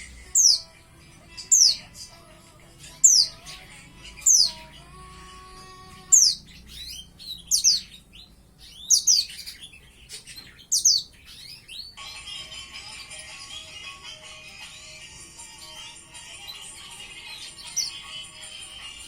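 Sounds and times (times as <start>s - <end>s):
young bird chirping: 0.0s - 0.7s, 1.4s - 1.9s, 2.8s - 4.9s, 6.0s - 12.0s.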